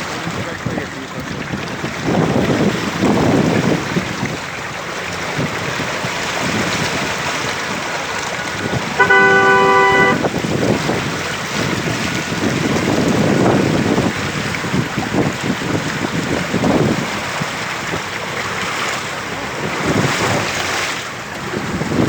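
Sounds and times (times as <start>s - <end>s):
vehicle horn blast: 8.7s - 10.4s.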